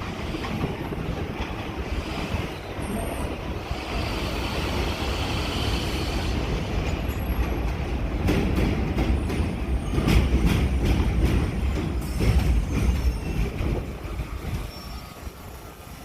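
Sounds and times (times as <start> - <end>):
subway train rumbling past: 0.0 - 16.0
wheels squealing: 11.8 - 15.8.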